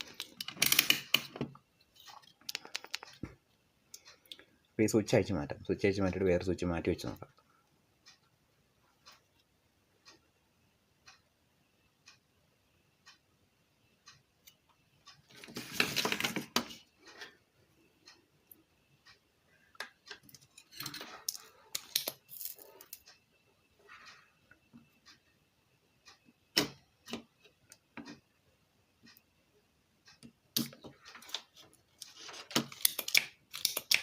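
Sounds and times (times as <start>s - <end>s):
tools clicking and rattling: 0.0s - 3.2s, 20.1s - 23.0s
clock ticking: 0.0s - 15.5s, 16.7s - 31.6s.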